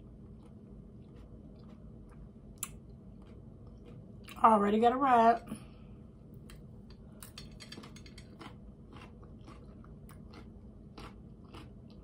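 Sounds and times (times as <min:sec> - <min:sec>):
person chewing crunchy salad: 0:00.0 - 0:04.4, 0:06.9 - 0:12.0.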